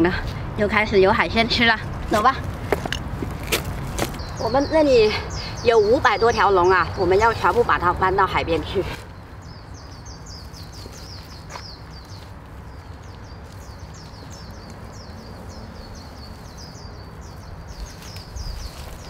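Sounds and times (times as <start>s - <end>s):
small bird chirping: 4.1s - 19.0s.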